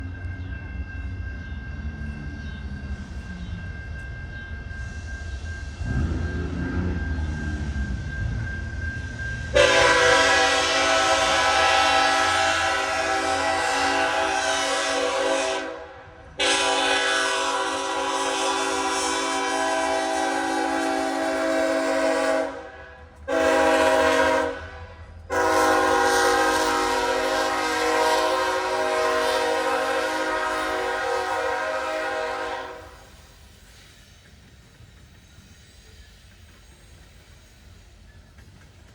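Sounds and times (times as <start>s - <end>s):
diesel locomotive rumble: 0.0s - 38.9s.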